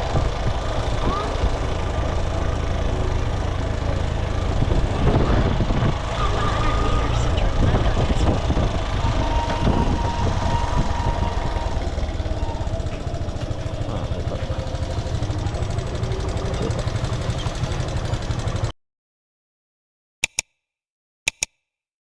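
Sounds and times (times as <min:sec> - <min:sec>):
motorcycle engine rumbling: 0:00.0 - 0:18.7
road noise: 0:00.0 - 0:18.7.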